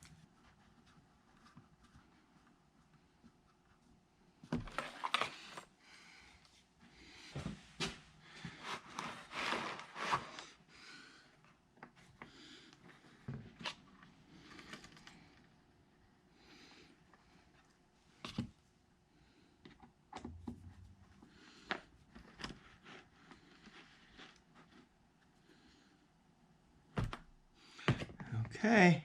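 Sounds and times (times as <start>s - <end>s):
scraping and rustling: 8.4s - 10.6s.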